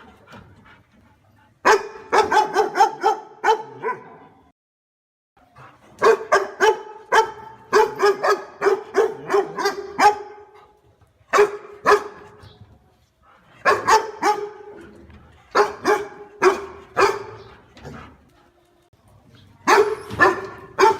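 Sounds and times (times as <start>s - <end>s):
dog barking loudly: 1.6s - 4.2s, 6.0s - 10.6s, 11.3s - 12.3s, 13.6s - 14.8s, 15.5s - 17.5s, 19.6s - 20.9s.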